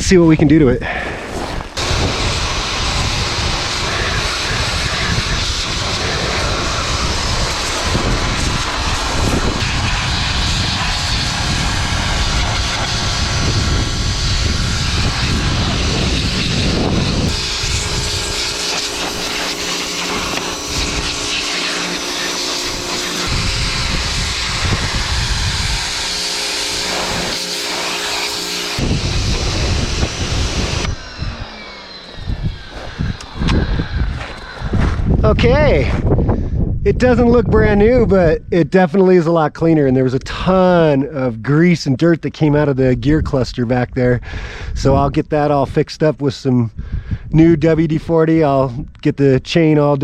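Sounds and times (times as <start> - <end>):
pressure washer water jet hissing: 1.4 - 34.6
steady motor hum: 1.4 - 36.4
low rumble: 1.6 - 27.4, 28.7 - 38.5.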